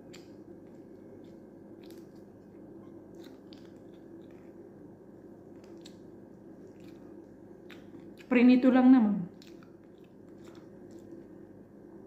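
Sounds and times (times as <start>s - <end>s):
mouth clicks and smacks: 0.0s - 2.4s, 9.3s - 11.2s
person chewing fried fish: 0.0s - 8.3s, 9.3s - 11.6s
low background hum: 0.0s - 12.0s.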